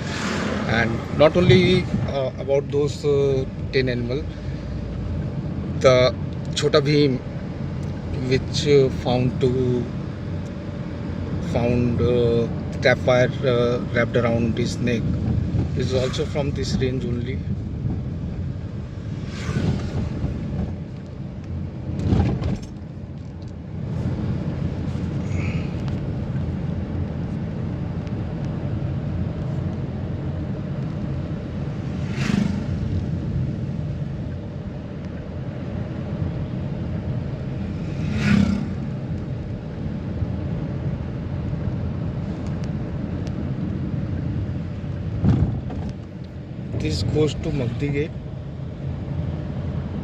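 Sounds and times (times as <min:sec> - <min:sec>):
vehicle driving on road: 0:00.0 - 0:50.0.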